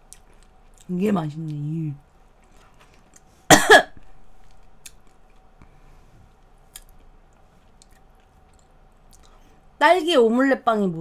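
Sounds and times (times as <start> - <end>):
close-up chewing mouth clicks: 6.7 - 9.4.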